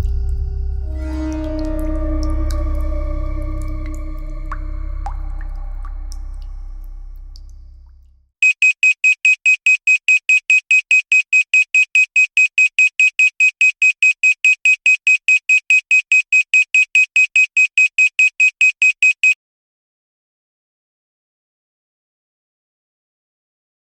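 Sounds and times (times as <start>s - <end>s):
low ambient drone: 0.0s - 8.2s
high-pitched timer alarm beeping: 8.4s - 19.4s.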